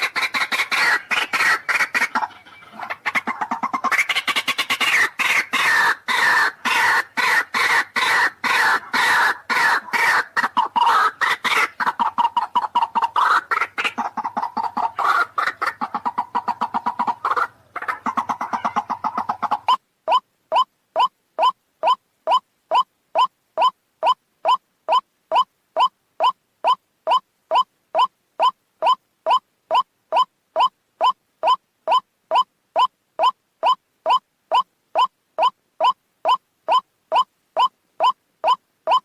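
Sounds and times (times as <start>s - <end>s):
waterhen calling: 0.0s - 39.0s.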